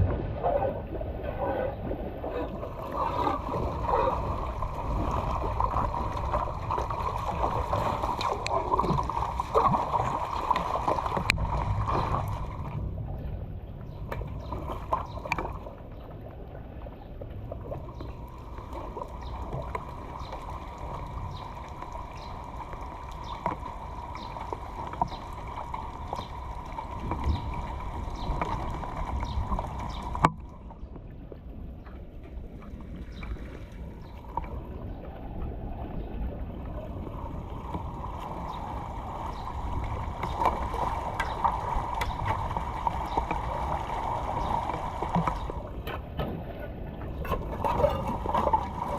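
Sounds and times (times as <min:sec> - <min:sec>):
water gurgling through a drain: 0:00.0 - 0:13.2, 0:14.1 - 0:30.6, 0:32.9 - 0:48.9
light clicks or splashes: 0:02.3 - 0:13.2, 0:13.8 - 0:16.3, 0:37.6 - 0:48.9.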